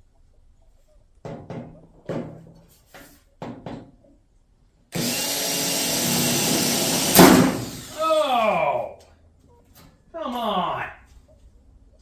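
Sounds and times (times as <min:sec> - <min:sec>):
drill bit cracking: 0:05.0 - 0:08.0
power drill boring through metal: 0:05.0 - 0:08.0.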